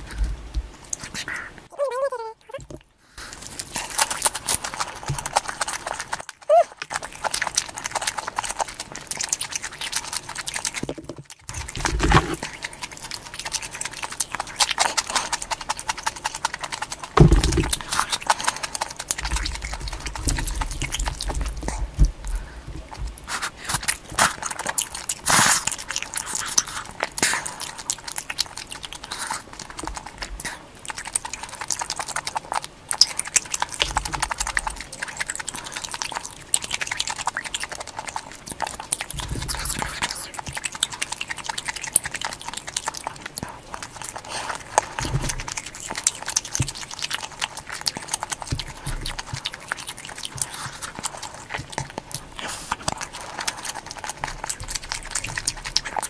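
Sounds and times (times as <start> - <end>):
close chewing: 0.0 - 56.0
wet mouth clicks and smacks: 2.6 - 56.0
louder thumps: 17.2 - 17.8.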